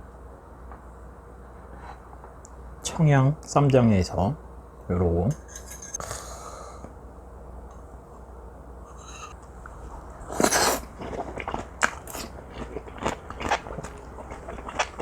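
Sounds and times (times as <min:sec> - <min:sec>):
loud bite: 0:10.3 - 0:15.0
wet chewing clicks: 0:10.4 - 0:15.0.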